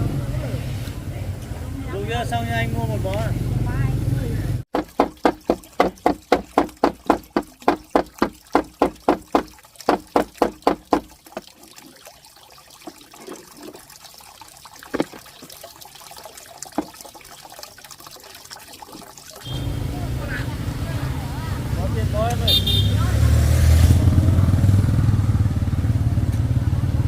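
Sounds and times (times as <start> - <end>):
water sloshing in pulses: 4.7 - 21.6.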